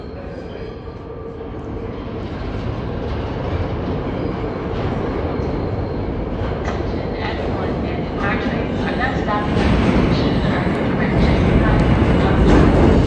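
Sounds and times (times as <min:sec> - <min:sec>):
subway train running: 0:00.0 - 0:13.0.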